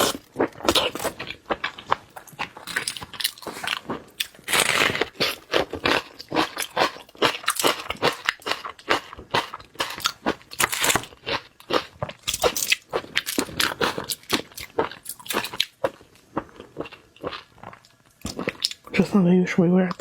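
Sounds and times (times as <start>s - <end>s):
wet chewing: 0.0s - 19.0s
crisp crunching bites: 2.6s - 8.6s, 9.8s - 15.6s.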